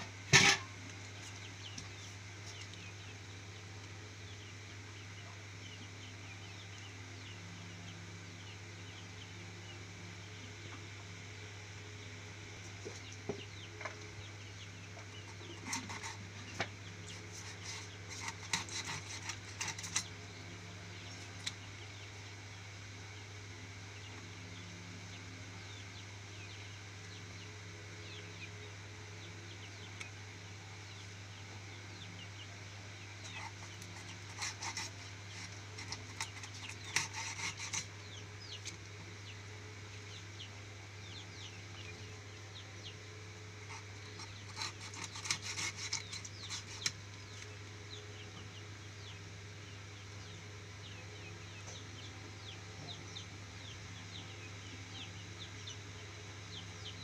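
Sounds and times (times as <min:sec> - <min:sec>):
chicks chirping: 0:00.0 - 0:57.0
steady low hum: 0:00.0 - 0:57.0
blade scraping fish scales: 0:15.4 - 0:20.1, 0:33.2 - 0:38.0, 0:43.7 - 0:47.0.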